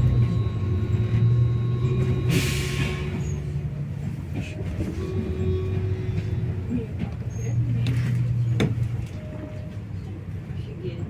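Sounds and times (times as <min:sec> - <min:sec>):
bus engine droning: 0:00.0 - 0:11.0.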